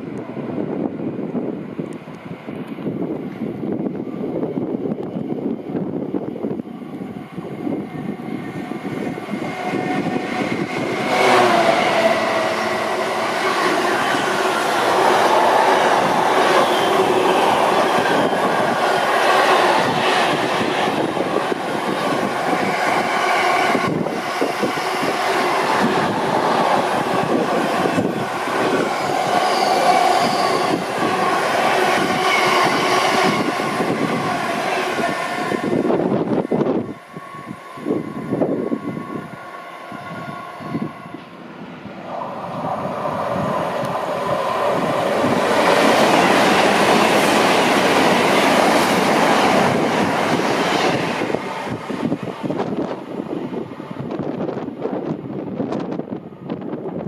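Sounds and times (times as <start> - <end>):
train wheels rushing on rail: 0.0 - 57.0
whining tones: 7.4 - 50.4.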